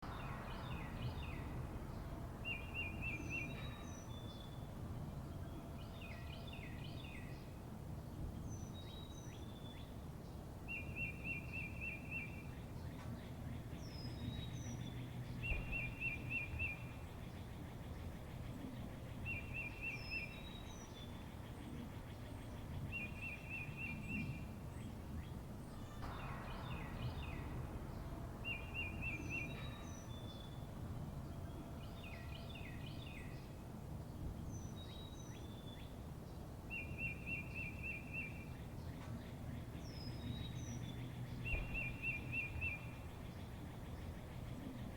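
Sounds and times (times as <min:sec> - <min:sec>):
low background rumble: 0:00.0 - 0:05.7, 0:24.3 - 0:33.5.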